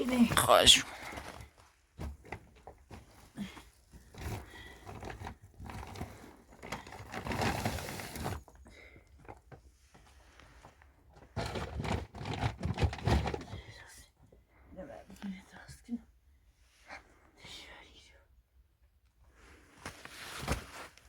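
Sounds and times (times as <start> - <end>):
crinkling and rustling handling noise: 0.0 - 13.4.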